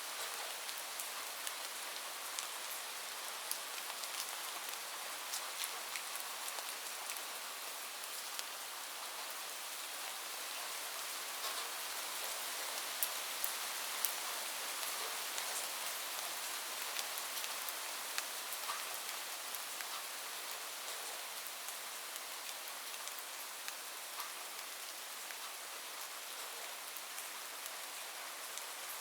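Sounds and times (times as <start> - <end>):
rain falling on a roof: 0.0 - 29.0.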